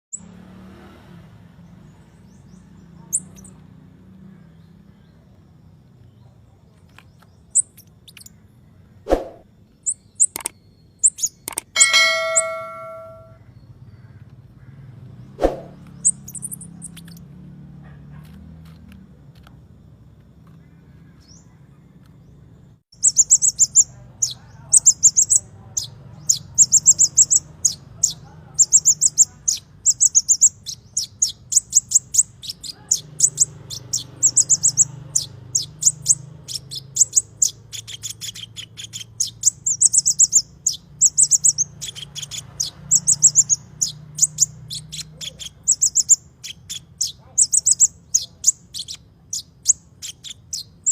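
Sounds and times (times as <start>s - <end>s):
high bird chirps: 2.2s - 3.6s, 7.0s - 13.7s, 15.4s - 17.3s, 22.9s - 50.9s
rapid high-pitched chirping: 7.5s - 8.4s, 9.8s - 13.4s, 16.0s - 17.3s, 23.0s - 50.9s
ringing bell-like note: 11.8s - 13.4s.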